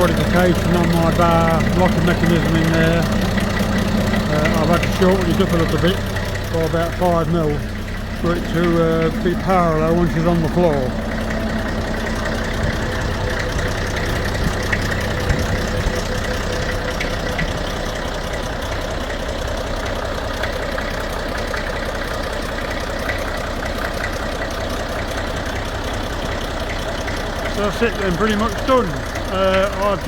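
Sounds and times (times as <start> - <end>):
tractor diesel engine idling: 0.0 - 30.0.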